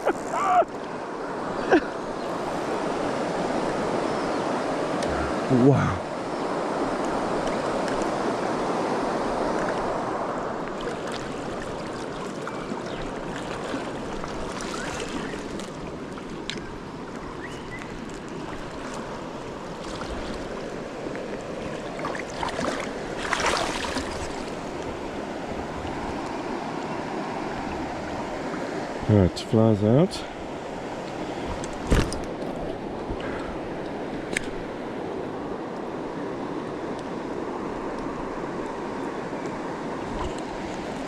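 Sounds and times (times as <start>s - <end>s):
river water running: 0.0s - 41.0s
water splashes: 9.2s - 26.4s.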